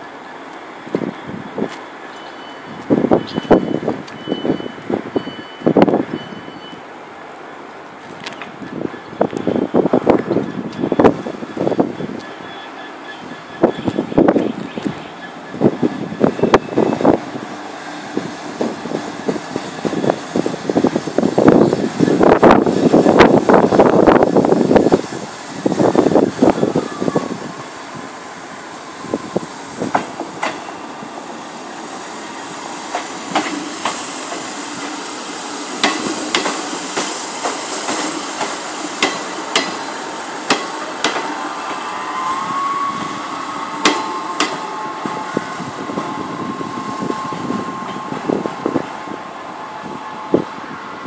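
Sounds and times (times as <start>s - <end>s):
train whine: 0.0s - 51.0s
train wheels clacking over joints: 29.9s - 30.8s, 32.9s - 35.0s, 35.8s - 41.8s, 43.8s - 44.7s.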